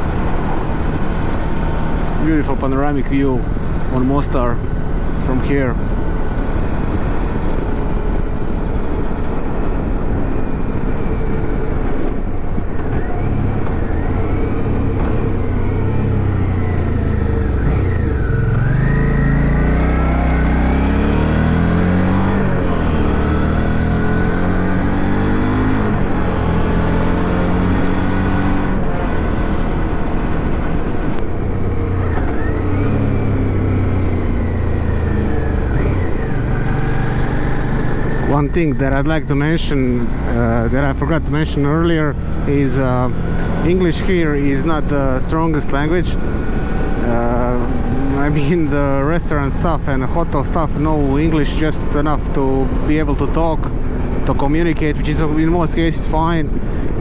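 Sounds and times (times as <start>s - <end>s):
motorcycle engine running: 0.0s - 38.4s.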